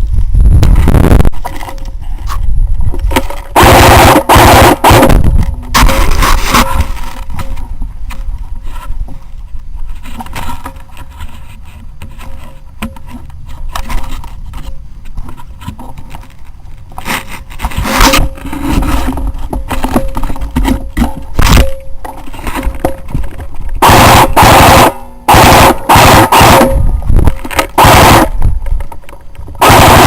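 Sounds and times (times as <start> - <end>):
handling scrapes and knocks: 0.0 - 3.6, 5.1 - 23.8
airsoft gun firing: 3.6 - 5.2, 23.8 - 26.8, 27.8 - 28.4, 29.6 - 30.0.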